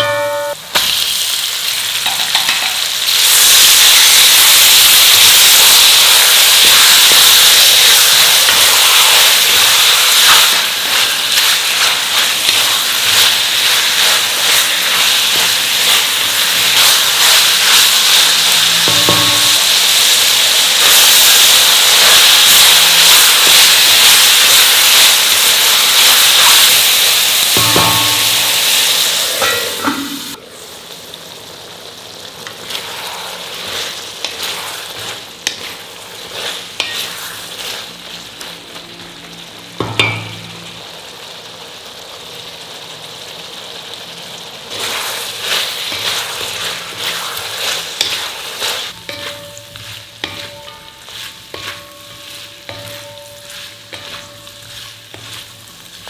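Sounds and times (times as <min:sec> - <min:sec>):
chicken sizzling in hot oil: 0:00.0 - 0:56.0
spatula knocking against pan: 0:18.8 - 0:19.6.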